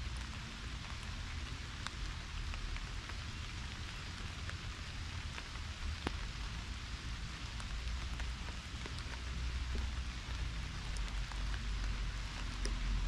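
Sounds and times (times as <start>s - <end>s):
pouring rain: 0.0s - 13.0s
raindrops ticking: 0.0s - 13.0s.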